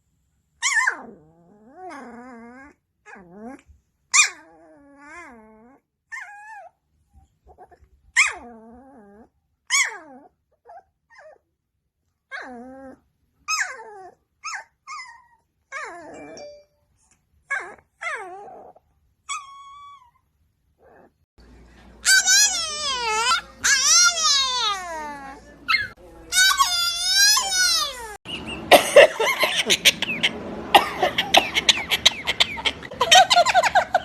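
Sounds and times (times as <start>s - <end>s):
dog whining and yowling: 0.6s - 6.8s, 7.5s - 11.4s, 12.3s - 16.5s, 17.5s - 21.2s, 22.1s - 28.5s.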